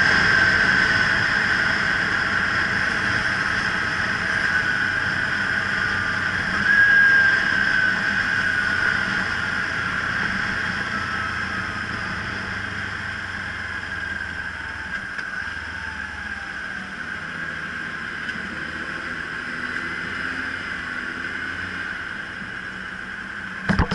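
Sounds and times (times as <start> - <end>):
motorcycle engine running: 0.0 - 14.8, 23.6 - 23.9
wind and road noise: 0.0 - 23.9.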